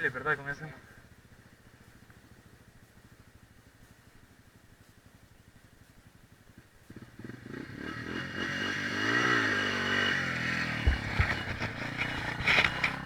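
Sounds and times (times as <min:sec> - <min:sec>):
dirt bike engine revving: 0:06.9 - 0:13.0
dull thumps: 0:10.8 - 0:12.8.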